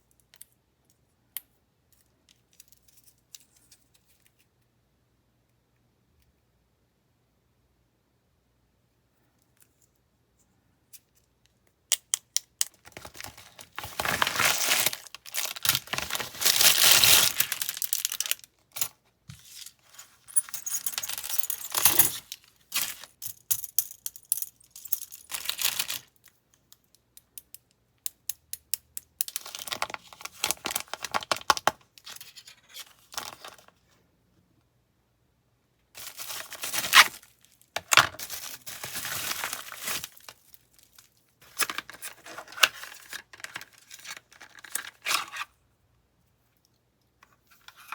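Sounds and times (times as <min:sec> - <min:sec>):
plastic packaging crinkling: 0:12.8 - 0:18.6, 0:36.0 - 0:45.2.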